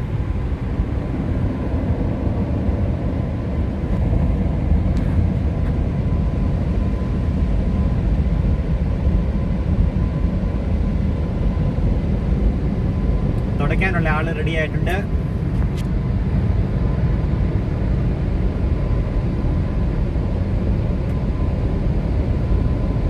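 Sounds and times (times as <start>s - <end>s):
car wash air blowers roaring: 0.0s - 17.1s.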